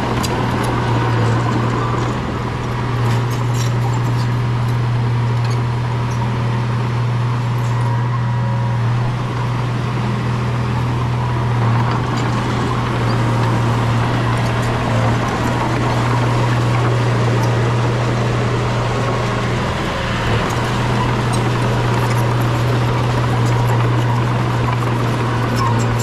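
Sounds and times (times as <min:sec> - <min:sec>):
bulldozer diesel engine droning: 0:00.0 - 0:26.0.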